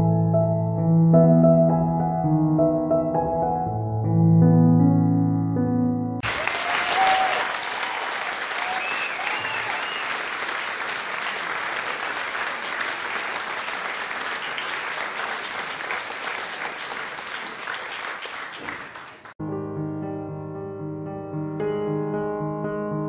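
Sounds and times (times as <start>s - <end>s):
soft piano music: 0.0s - 6.2s, 19.4s - 23.0s
applause: 6.2s - 19.4s.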